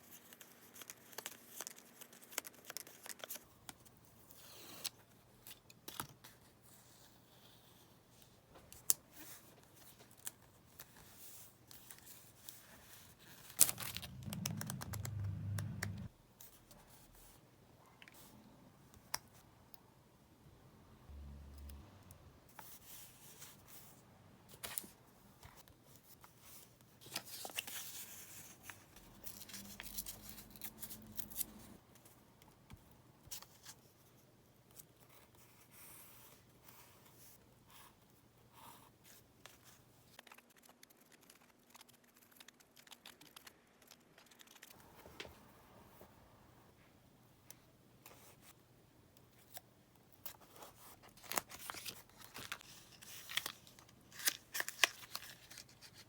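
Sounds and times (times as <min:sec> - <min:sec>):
paper tearing rustle: 0:51.2 - 0:56.0.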